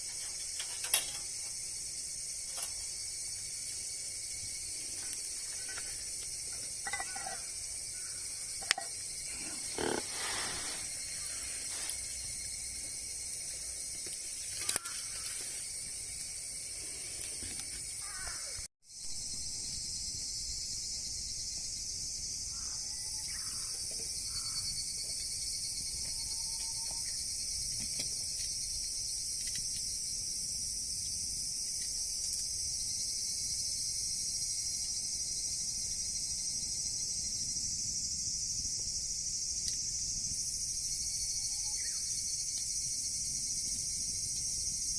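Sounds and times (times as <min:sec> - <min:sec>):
insects buzzing: 0:00.0 - 0:44.9
faint animal calls: 0:09.3 - 0:11.9.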